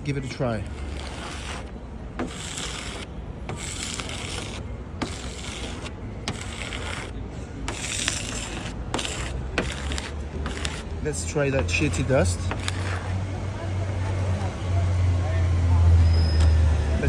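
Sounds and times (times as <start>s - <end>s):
hand rubbing car surface: 0.1s - 13.1s.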